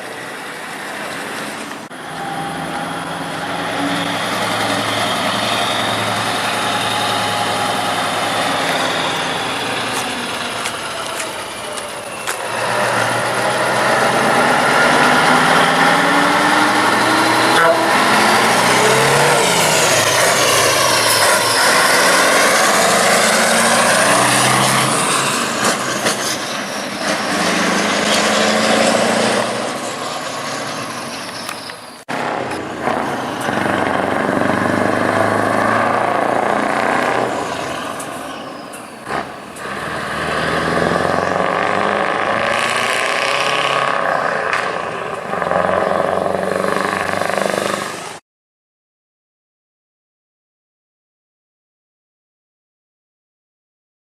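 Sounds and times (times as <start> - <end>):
heavy trucks driving past: 0.0 - 48.2.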